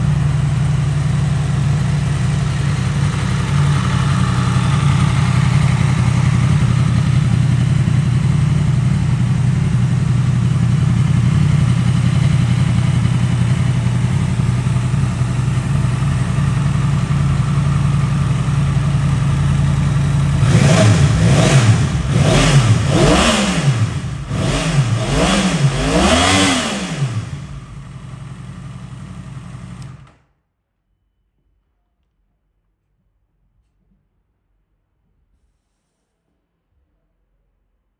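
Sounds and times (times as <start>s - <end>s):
motorcycle engine idling: 0.0s - 30.1s
motorcycle throttle blips: 0.0s - 30.1s.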